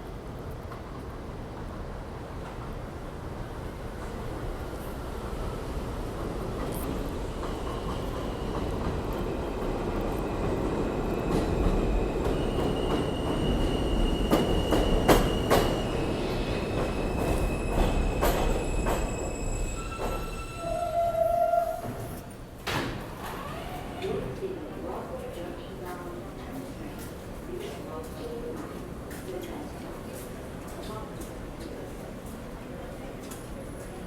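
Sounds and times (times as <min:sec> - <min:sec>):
train wheel-on-rail rumble: 0:00.0 - 0:34.0
high wheel squeals: 0:12.6 - 0:22.2.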